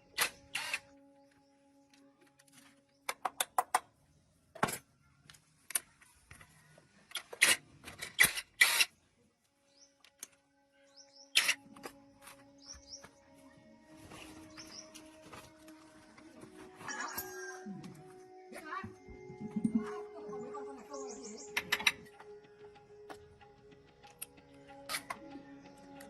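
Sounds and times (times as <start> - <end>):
hand tools clicking and knocking: 3.0 - 3.9.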